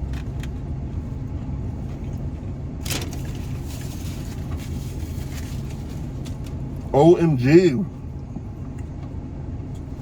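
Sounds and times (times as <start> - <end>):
engine idling low hum: 0.0 - 10.0.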